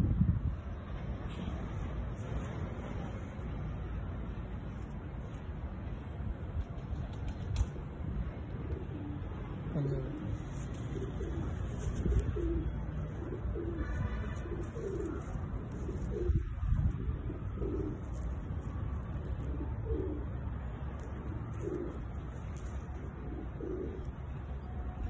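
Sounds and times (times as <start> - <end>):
pigeons cooing: 8.5 - 24.3.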